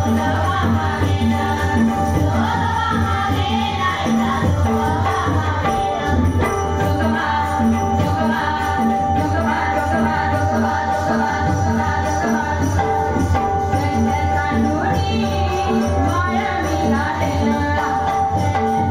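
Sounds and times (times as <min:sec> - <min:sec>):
jingling metal percussion: 0:00.0 - 0:18.9
women singing devotional song: 0:00.0 - 0:18.9.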